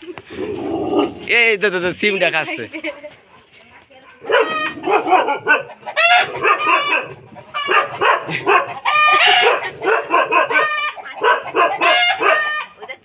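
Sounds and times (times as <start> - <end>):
dog barking and yelping: 4.2 - 13.0.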